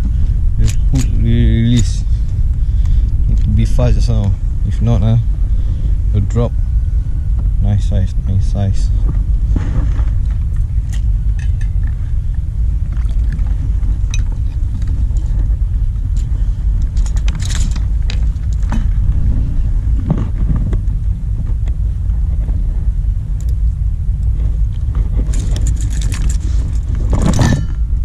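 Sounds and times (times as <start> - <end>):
wind buffeting microphone: 0.0 - 28.0
fishing tackle clicking and rattling: 16.1 - 18.9, 25.2 - 27.5.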